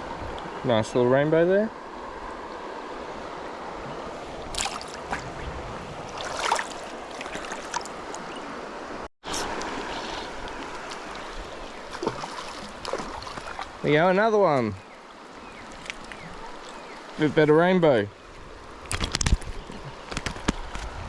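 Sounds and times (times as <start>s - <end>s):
river water rushing over stones: 1.8s - 5.3s, 6.0s - 17.4s
water splashes: 3.8s - 17.6s.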